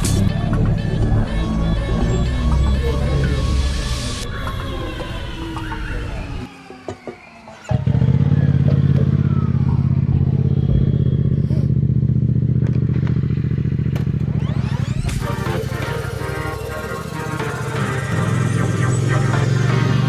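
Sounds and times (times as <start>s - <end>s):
music: 0.0s - 6.5s, 14.4s - 20.0s
motorcycle engine running: 7.7s - 20.0s.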